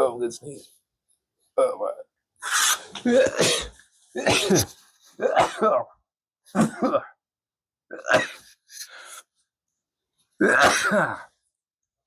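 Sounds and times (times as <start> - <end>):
man sneezing: 2.4 - 5.9, 10.4 - 11.3
man coughing: 3.0 - 7.2, 10.4 - 11.3.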